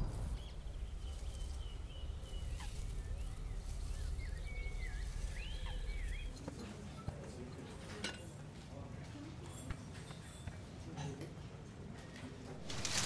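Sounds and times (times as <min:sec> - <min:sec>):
low outdoor rumble: 0:00.0 - 0:06.6
songbird singing: 0:00.0 - 0:06.7.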